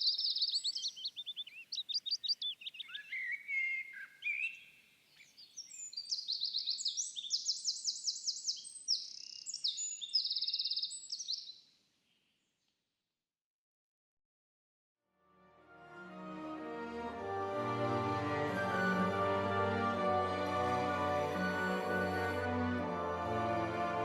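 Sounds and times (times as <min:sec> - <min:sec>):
songbirds singing trills: 0:00.0 - 0:12.6.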